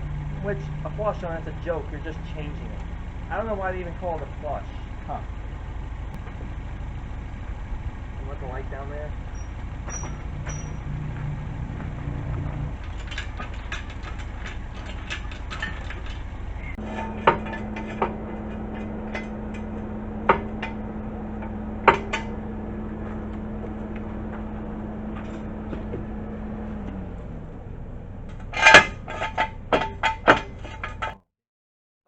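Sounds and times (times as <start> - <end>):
motor hum: 0.0 - 31.2
metal clanking from hand tools: 9.3 - 27.4, 28.2 - 31.2.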